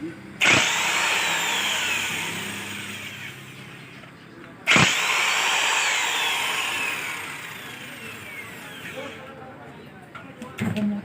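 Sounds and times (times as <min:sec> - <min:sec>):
power tool motor whining: 0:00.4 - 0:04.0, 0:04.7 - 0:09.3.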